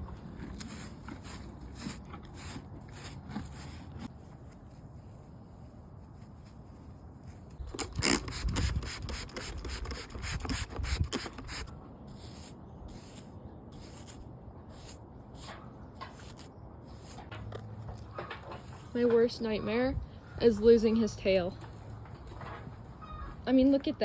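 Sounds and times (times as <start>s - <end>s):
brush rubbing horse hair: 0.1s - 17.4s.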